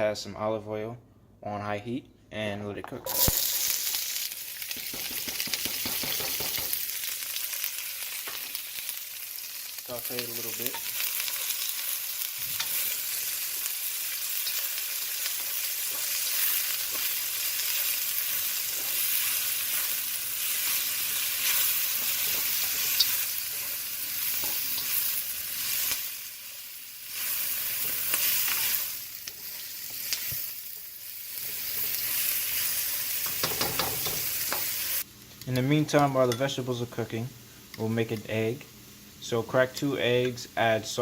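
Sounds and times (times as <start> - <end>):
vegetables sizzling in oil: 3.1 - 35.4.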